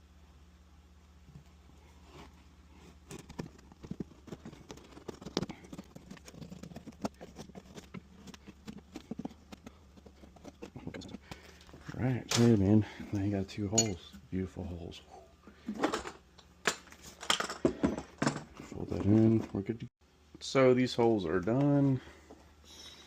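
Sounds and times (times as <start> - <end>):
faint low hum: 0.0 - 23.0
clicks taps and scraping: 1.2 - 14.2.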